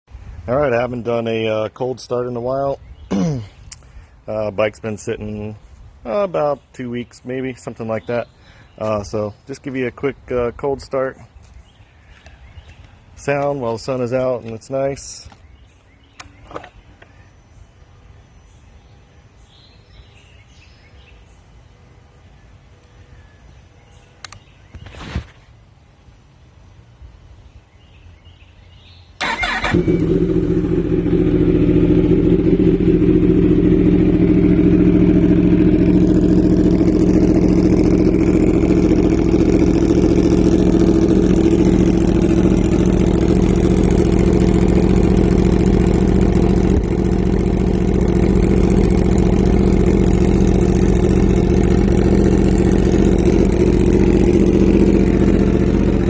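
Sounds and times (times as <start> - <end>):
quiet outdoor ambience: 0.1 - 56.0
motorcycle engine starting and idling: 29.2 - 56.0.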